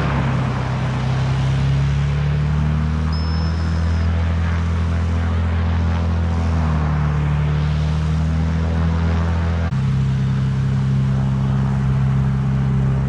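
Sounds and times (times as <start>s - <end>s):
engine humming steadily: 0.0s - 13.0s
short high whistle: 3.1s - 4.1s.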